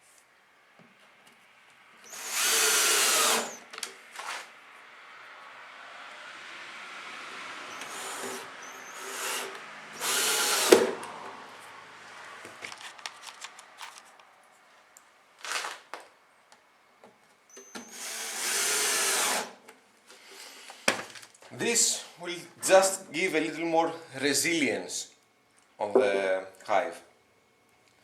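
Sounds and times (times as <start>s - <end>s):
power drill driving screws: 2.0s - 3.7s, 7.7s - 11.0s, 17.6s - 19.6s.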